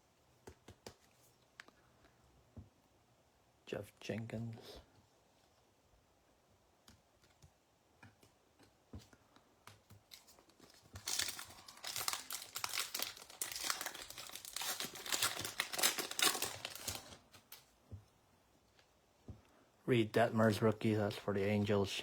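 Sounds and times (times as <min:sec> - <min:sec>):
foil wrapper tearing and crinkling: 0:10.1 - 0:17.6.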